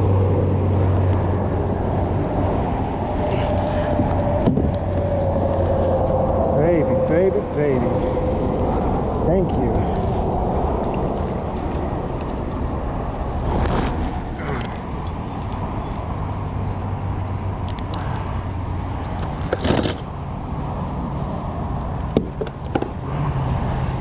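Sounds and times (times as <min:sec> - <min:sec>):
steady rushing noise: 0:00.0 - 0:16.4.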